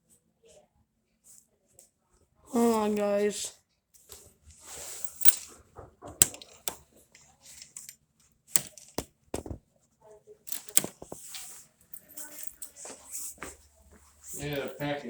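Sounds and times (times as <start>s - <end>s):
sharp handling clicks and knocks: 5.0s - 5.4s, 6.0s - 6.8s, 8.6s - 9.6s, 10.5s - 12.8s, 14.4s - 14.8s.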